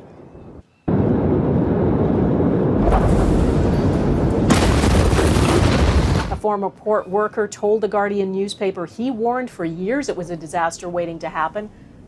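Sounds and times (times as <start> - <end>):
explosion rumbling roar: 0.9 - 6.4.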